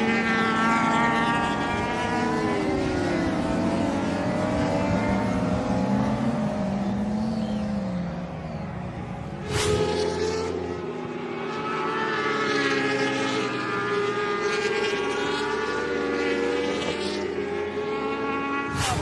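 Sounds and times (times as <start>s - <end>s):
racing motorcycles revving high: 12.1s - 19.0s.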